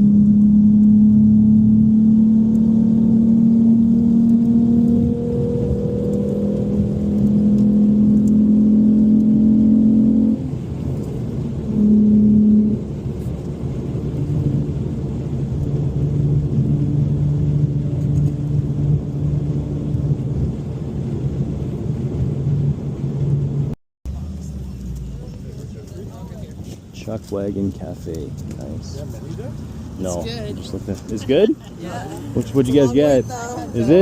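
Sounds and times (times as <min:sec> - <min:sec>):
car engine running: 0:00.0 - 0:34.0.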